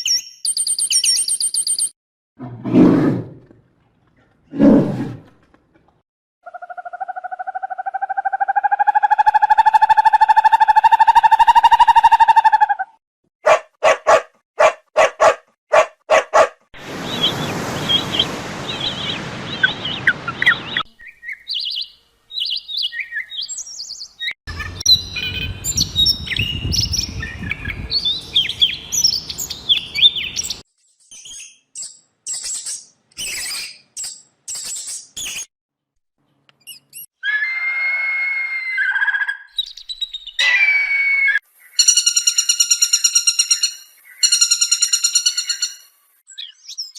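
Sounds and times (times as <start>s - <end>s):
bird chirps and tweets: 0.0s - 1.9s, 17.0s - 35.4s, 38.9s - 40.4s, 41.6s - 46.9s
long pitched bird calls: 16.8s - 30.6s, 37.2s - 46.9s.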